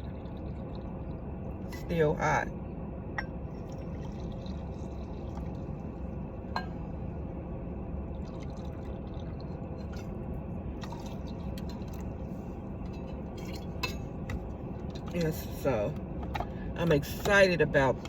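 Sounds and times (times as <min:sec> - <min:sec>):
hot water pouring into cup: 0:03.6 - 0:05.7.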